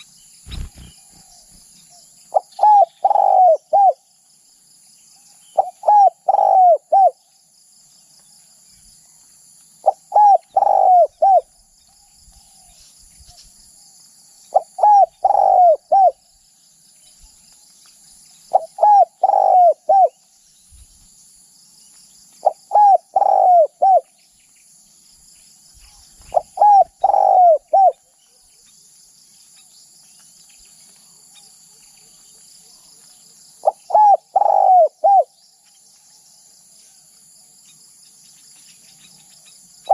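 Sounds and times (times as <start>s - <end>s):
dove cooing: 0.5s - 1.5s, 2.3s - 4.0s, 5.6s - 7.2s, 9.8s - 11.5s, 14.5s - 16.2s, 18.5s - 20.2s, 22.4s - 24.1s, 26.2s - 28.0s, 33.6s - 35.3s.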